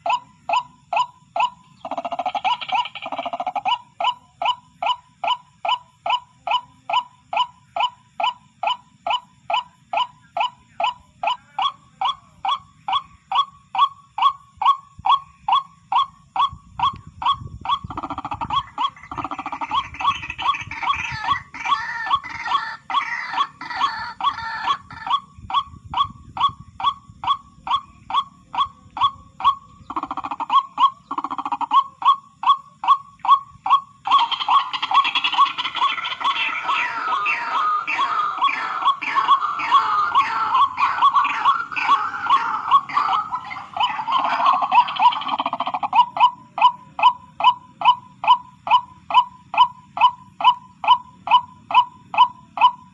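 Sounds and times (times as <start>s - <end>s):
waterhen calling: 0.0s - 6.6s, 7.4s - 52.9s
waterhen calling short sharp notes: 32.8s - 46.1s.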